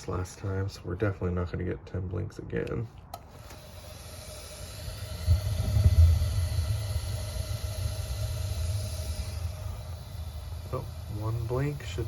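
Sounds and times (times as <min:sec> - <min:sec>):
gas hissing: 0:03.1 - 0:12.0
gas burner flame rumble: 0:03.2 - 0:12.0.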